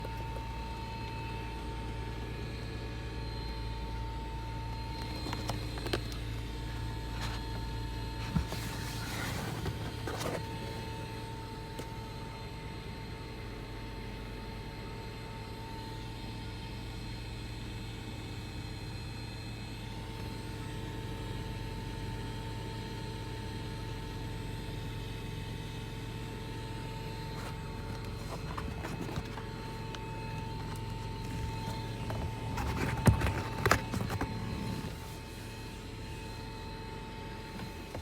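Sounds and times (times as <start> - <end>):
steady whining tone: 27.0 - 38.0.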